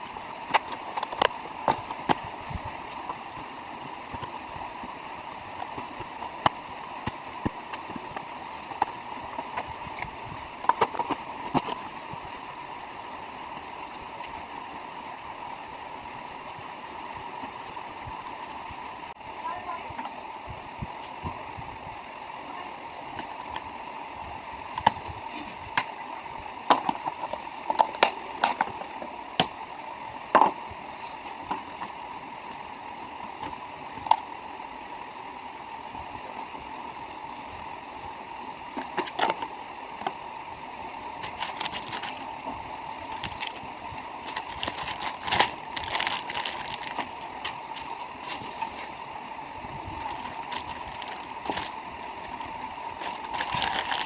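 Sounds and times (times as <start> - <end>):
items clicking and knocking: 5.6 - 11.9, 26.6 - 29.6, 41.2 - 42.3, 43.0 - 48.5, 50.0 - 54.0.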